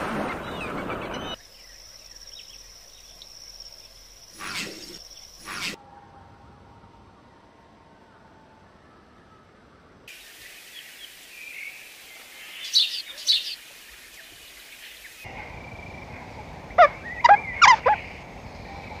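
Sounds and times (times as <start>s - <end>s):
bird calls: 0.0s - 5.8s, 14.2s - 19.0s
faint outdoor background: 0.0s - 19.0s.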